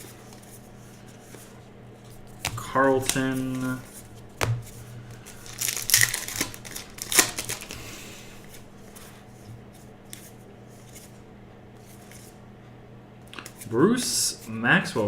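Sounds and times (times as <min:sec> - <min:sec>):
trading cards flipped through: 0:00.0 - 0:09.1, 0:09.7 - 0:11.2, 0:11.8 - 0:12.4.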